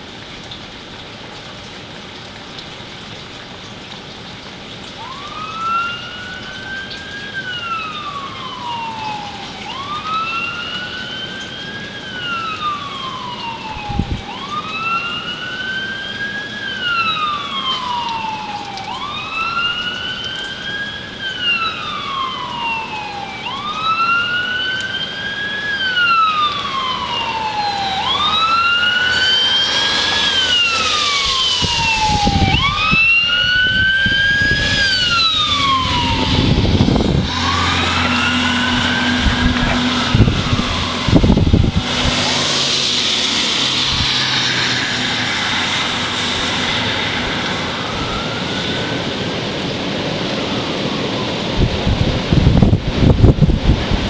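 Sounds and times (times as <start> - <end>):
emergency siren wailing: 4.0 - 54.0
vehicle rushing: 26.6 - 54.0.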